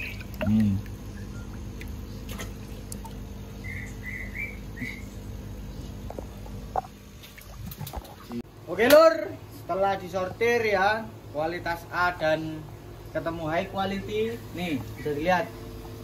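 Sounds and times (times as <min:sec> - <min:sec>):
water splashing: 0:00.0 - 0:03.4, 0:06.2 - 0:08.4
low steady hum: 0:00.0 - 0:16.0
bird chirping: 0:03.4 - 0:06.0.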